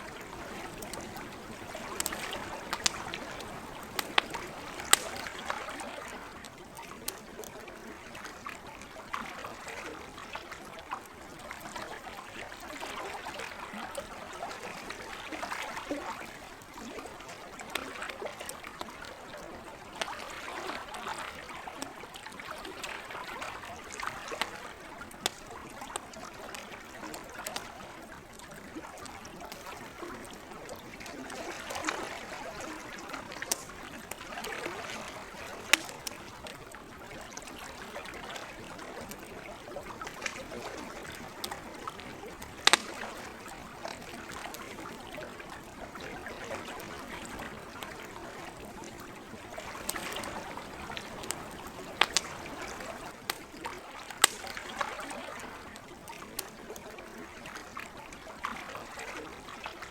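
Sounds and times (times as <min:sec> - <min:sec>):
campfire wood popping: 0:00.0 - 0:07.8, 0:23.4 - 0:56.8
lake water lapping: 0:00.0 - 0:59.9.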